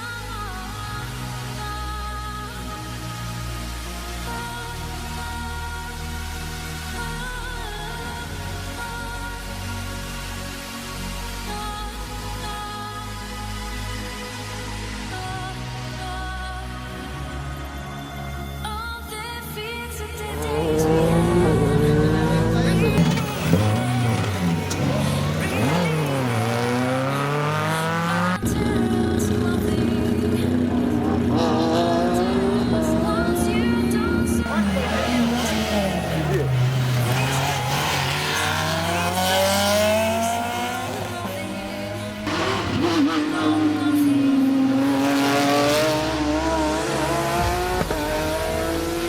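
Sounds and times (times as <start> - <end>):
rally car engine accelerating: 20.2 - 49.0
rally car engine at high revs: 20.2 - 49.0.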